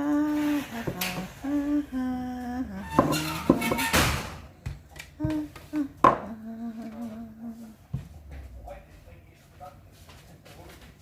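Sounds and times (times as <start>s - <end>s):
woman humming: 0.0s - 3.9s, 5.2s - 8.0s
objects knocking: 2.9s - 5.4s.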